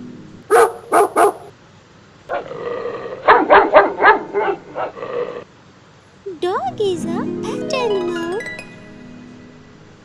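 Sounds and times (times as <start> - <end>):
dog barking: 0.5 - 1.5, 3.2 - 5.0.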